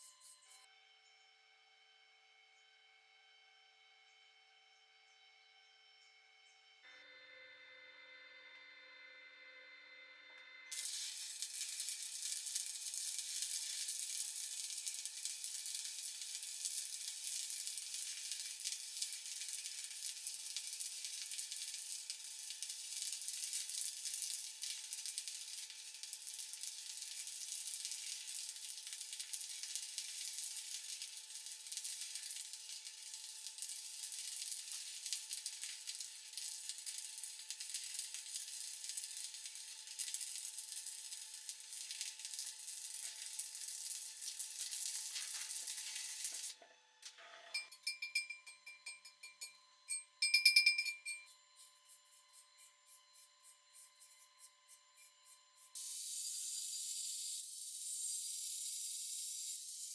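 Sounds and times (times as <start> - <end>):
welding arc crackling: 10.7 - 46.5.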